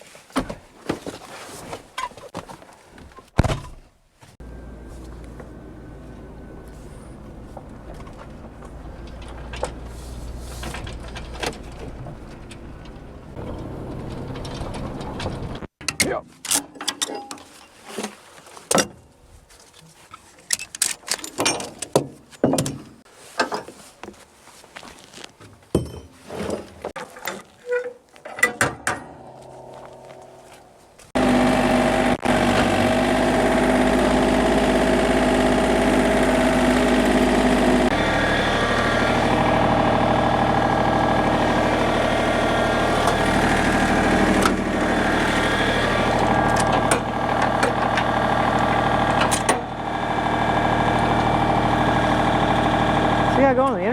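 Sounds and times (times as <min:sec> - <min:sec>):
engine running: 0:04.4 - 0:15.7, 0:29.1 - 0:53.9.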